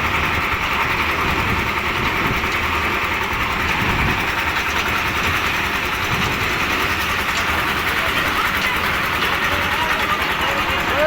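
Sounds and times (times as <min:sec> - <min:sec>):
concrete mixer engine running: 0:00.0 - 0:11.0.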